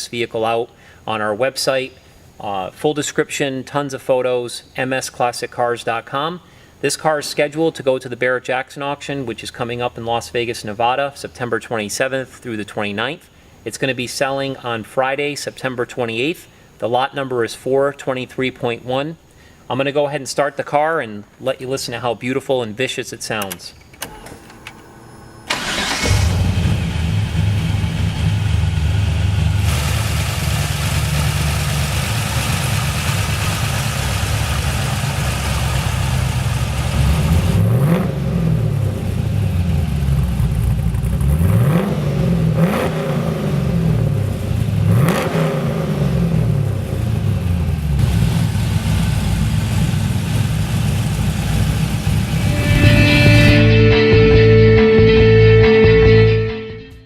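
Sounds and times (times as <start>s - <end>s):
car engine idling and revving: 25.3s - 53.4s.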